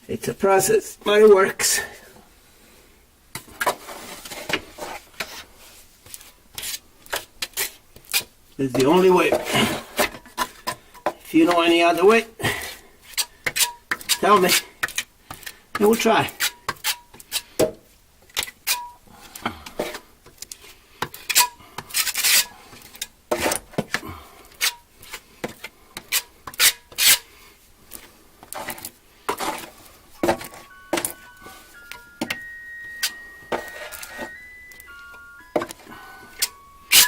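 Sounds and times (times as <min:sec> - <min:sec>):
simple tune of steady notes: 0:30.2 - 0:37.0.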